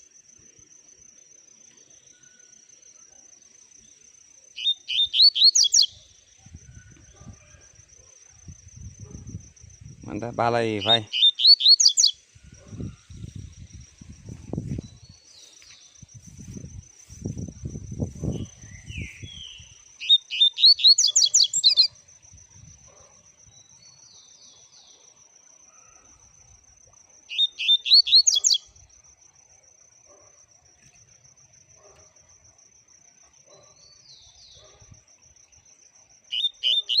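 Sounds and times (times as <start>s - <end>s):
bird singing: 3.8s - 8.0s, 10.1s - 13.5s, 18.0s - 22.0s, 22.9s - 26.4s, 27.3s - 28.7s, 36.3s - 37.0s
bird chirps: 4.6s - 6.1s, 10.7s - 13.4s, 18.2s - 22.0s, 27.3s - 28.7s, 36.3s - 37.0s.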